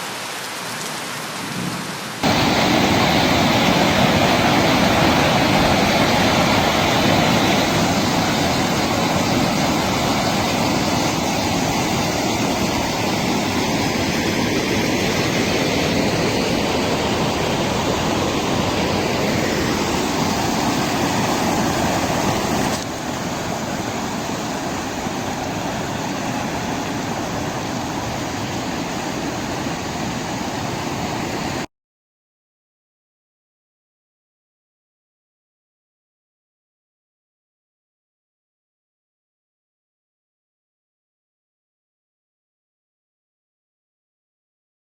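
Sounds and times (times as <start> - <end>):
rushing flood water: 0.0 - 31.7.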